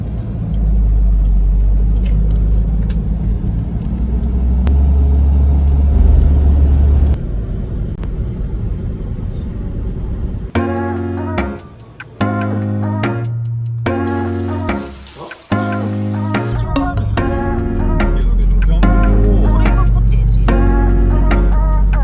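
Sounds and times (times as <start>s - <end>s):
moving vehicle rumble: 0.0s - 10.6s, 13.2s - 22.0s
music: 10.6s - 22.0s.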